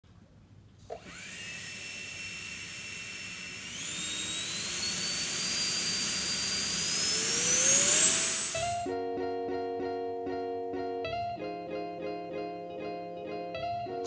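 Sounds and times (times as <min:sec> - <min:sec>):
electric fan high whine: 0:00.4 - 0:08.9.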